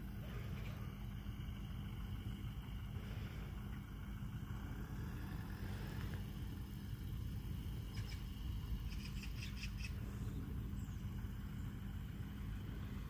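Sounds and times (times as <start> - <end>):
steady low rumble: 0.0 - 13.0
small bird chirping: 5.3 - 12.7.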